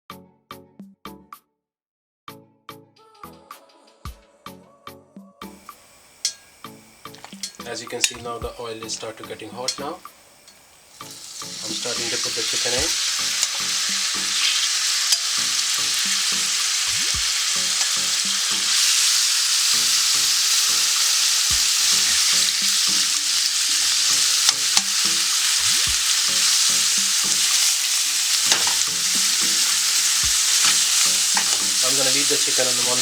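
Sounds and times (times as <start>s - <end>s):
chicken sizzling in a frying pan: 5.5s - 33.0s.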